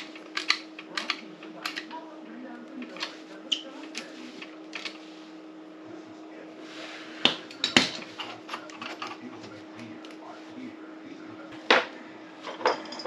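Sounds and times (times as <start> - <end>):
hand tools clicking and knocking: 0.0 - 2.0
steady low hum: 0.0 - 13.0.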